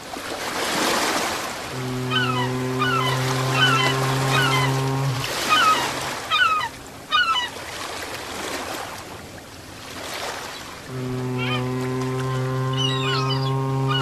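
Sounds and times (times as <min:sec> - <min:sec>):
ocean waves washing: 0:00.0 - 0:14.0
low steady horn tone: 0:01.7 - 0:05.8, 0:10.9 - 0:14.0
bird calls: 0:01.7 - 0:07.6, 0:10.5 - 0:14.0.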